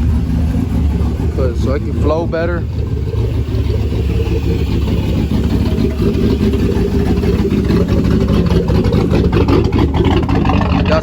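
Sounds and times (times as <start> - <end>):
truck engine running loud: 0.0 - 11.0.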